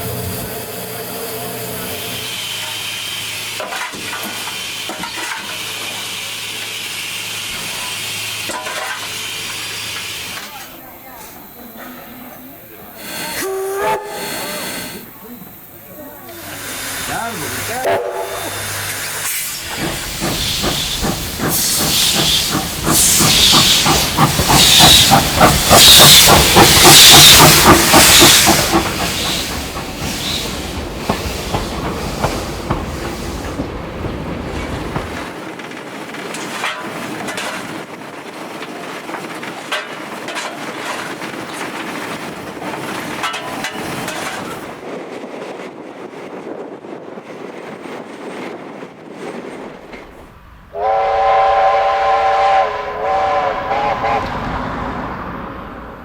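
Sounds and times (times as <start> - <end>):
steam hiss: 0.0 - 33.9
steam locomotive chuffing: 0.0 - 45.0, 50.0 - 55.0
wheels clicking over rail joints: 19.0 - 45.0.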